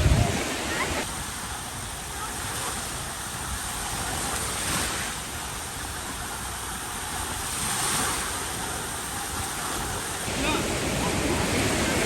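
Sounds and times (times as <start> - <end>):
sea waves washing onto beach: 0.0 - 12.0.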